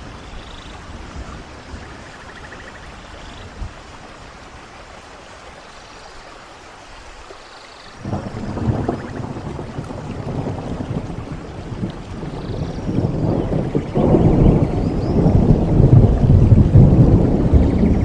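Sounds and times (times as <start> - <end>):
rain hiss: 0.0 - 18.0
rolling thunder rumble: 8.0 - 18.0.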